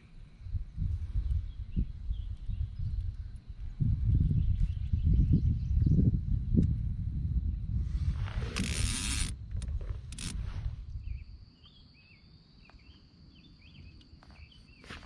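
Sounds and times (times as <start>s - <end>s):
short rasping noises: 8.1s - 10.8s
faint chirps: 10.5s - 15.0s.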